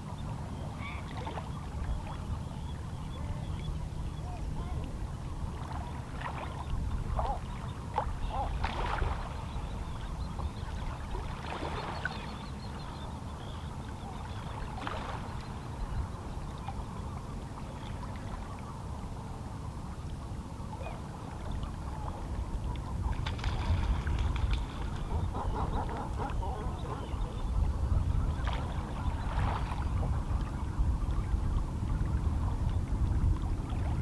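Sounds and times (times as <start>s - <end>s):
small water splashes: 5.6s - 9.4s, 23.2s - 25.0s.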